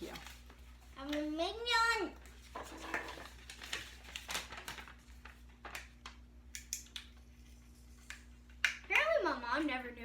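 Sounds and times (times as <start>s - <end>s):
low room hum: 0.0s - 10.0s
plastic toy and packaging handled: 2.2s - 6.2s.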